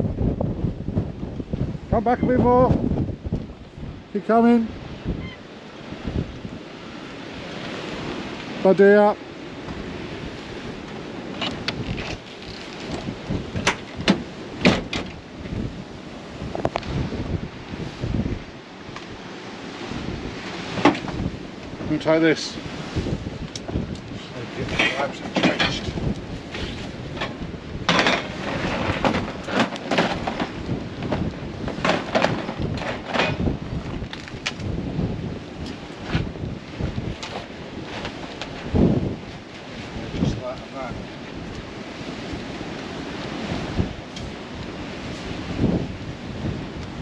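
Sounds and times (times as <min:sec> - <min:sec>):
storm wind: 0:00.0 - 0:47.0
surf rushing: 0:00.0 - 0:47.0
sharp knocks and crashes: 0:13.6 - 0:15.2, 0:27.2 - 0:33.5.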